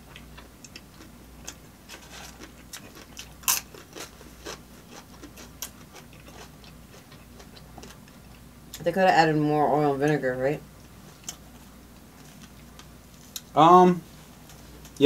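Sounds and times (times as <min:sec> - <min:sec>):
people chewing with wet smacks: 0:00.0 - 0:08.8.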